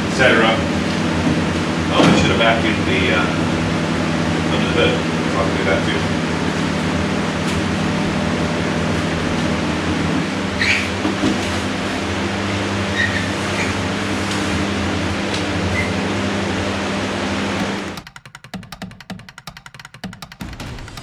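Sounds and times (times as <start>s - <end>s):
shop vac motor hum: 0.0s - 18.1s
nozzle knocking and rattling: 17.6s - 21.0s.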